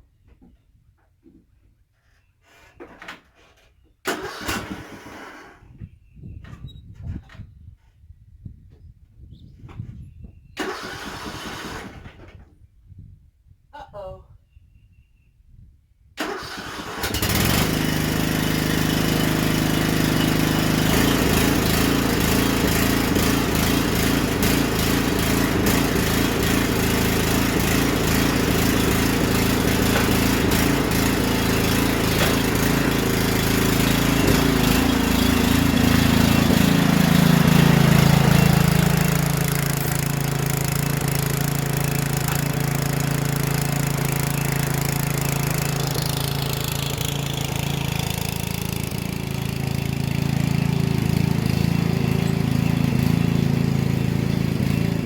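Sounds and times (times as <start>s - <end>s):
riding lawn mower engine: 3.4s - 5.8s, 10.6s - 12.4s, 16.2s - 55.0s.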